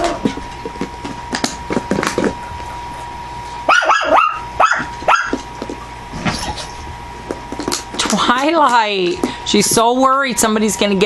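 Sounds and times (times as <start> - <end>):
puppy yipping barks: 3.7 - 5.4.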